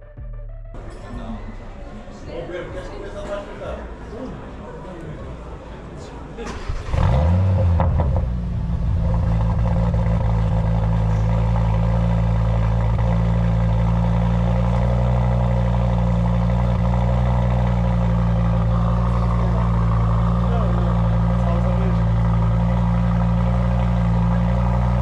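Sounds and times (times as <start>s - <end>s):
car engine idling: 6.4s - 25.0s.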